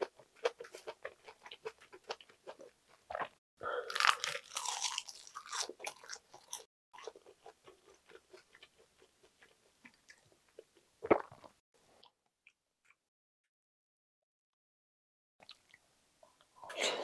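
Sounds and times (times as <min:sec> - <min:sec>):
crunchy bite crackling: 0:00.0 - 0:10.2.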